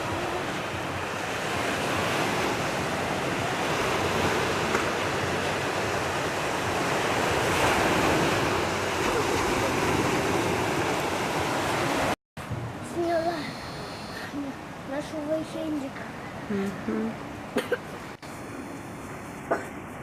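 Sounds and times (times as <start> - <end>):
sea waves washing on shore: 0.0 - 20.0.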